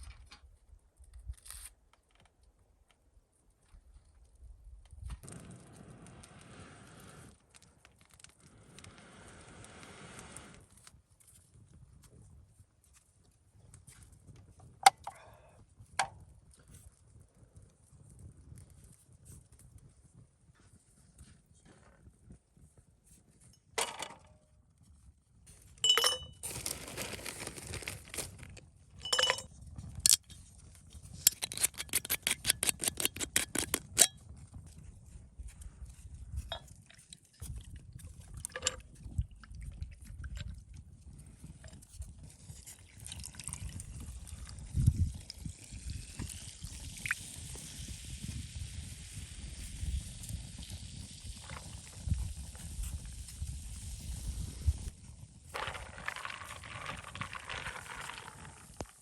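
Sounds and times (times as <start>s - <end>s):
camp gear clinking: 25.8s - 30.4s, 31.2s - 34.1s
fast run of clicks: 31.2s - 34.1s.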